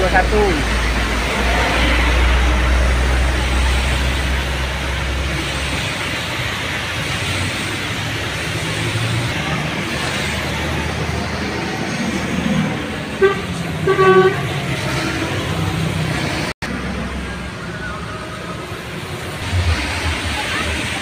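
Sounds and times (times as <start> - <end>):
heavy rain: 0.0 - 21.0
passing traffic: 0.0 - 21.0
vehicle horn honking: 13.2 - 15.5.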